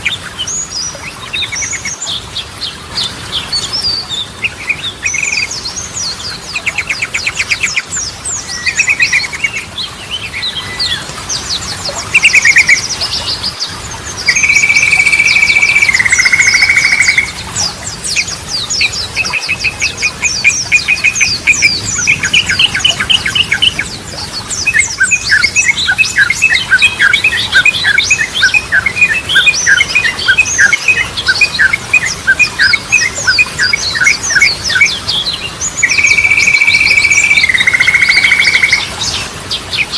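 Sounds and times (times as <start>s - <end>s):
bulbuls singing: 0.0s - 39.9s
high bird twittering: 10.4s - 13.5s, 14.2s - 39.2s.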